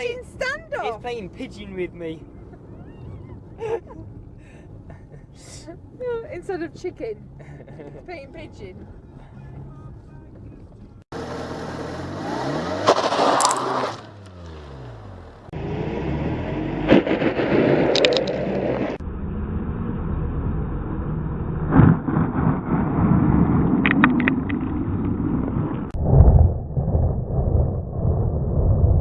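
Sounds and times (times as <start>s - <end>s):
road traffic noise: 0.0s - 21.9s
sharp clicks or knocks: 17.9s - 18.4s, 23.8s - 24.6s.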